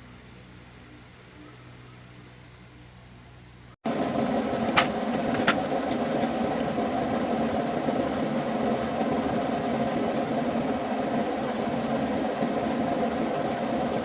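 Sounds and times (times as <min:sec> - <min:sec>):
engine running: 0:03.9 - 0:14.0.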